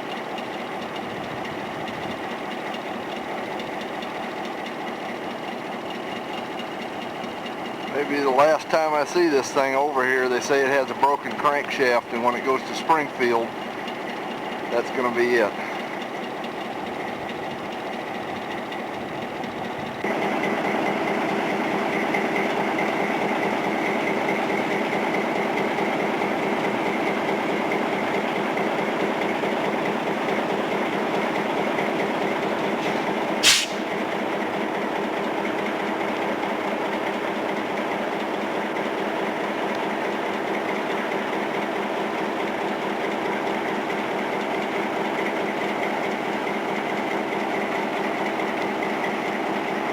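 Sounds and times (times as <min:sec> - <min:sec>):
diesel locomotive running: 0:00.0 - 0:49.9
sharp click: 0:32.8 - 0:33.9.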